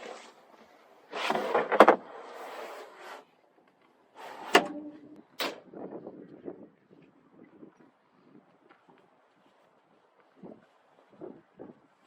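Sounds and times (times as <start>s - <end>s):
panel sliding scrape: 1.1s - 3.2s, 4.2s - 5.6s.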